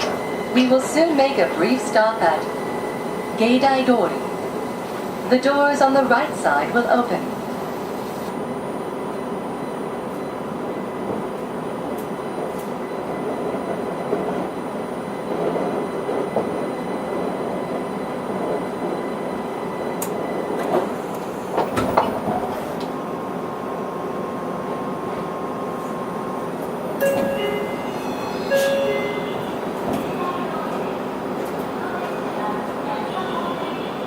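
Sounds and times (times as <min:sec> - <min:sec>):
train interior hum: 0:00.0 - 0:34.0
electronic chime: 0:27.0 - 0:29.4.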